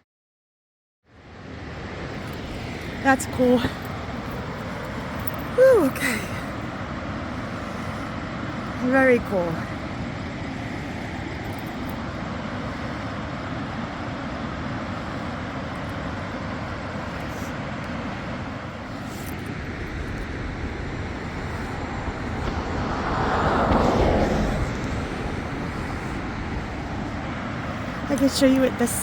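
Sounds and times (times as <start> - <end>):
water rushing over a dam: 1.4 - 11.3
loud whoosh of water: 16.8 - 28.0.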